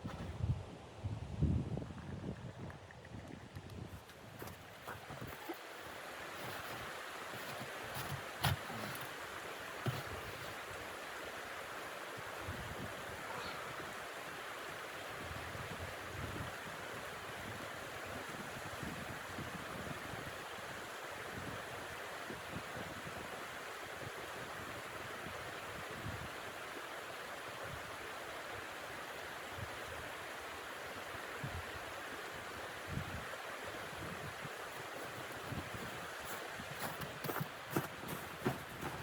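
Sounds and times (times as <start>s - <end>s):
wind gusts buffeting microphone: 33.9s - 39.0s.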